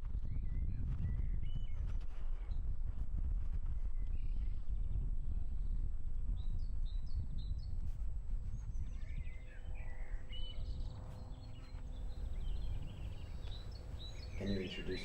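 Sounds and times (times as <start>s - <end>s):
small birds chirping: 6.4s - 15.0s.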